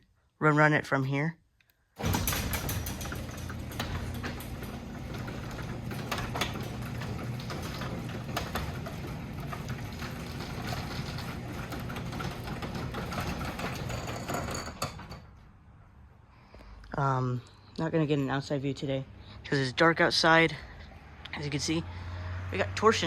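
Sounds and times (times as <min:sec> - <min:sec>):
clicks and rattles of door: 0:02.0 - 0:15.4
garage door opener motor hum: 0:02.0 - 0:15.4.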